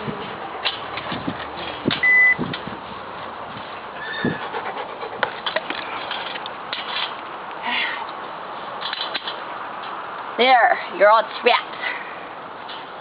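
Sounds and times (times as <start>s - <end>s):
puppy paws scuffling and clicking: 0.2s - 10.0s.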